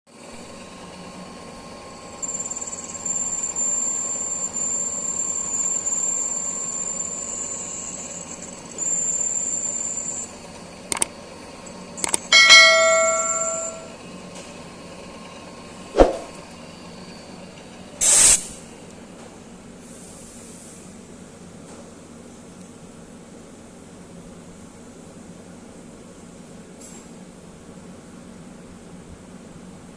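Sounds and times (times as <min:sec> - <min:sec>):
sharp clicks: 0:10.9 - 0:11.1, 0:12.0 - 0:12.3
loud metallic ring: 0:12.3 - 0:14.0.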